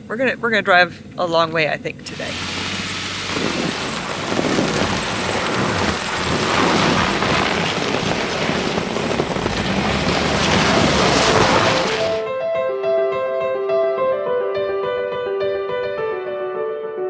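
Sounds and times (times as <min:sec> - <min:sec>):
gusty wind on microphone: 0:02.1 - 0:12.3.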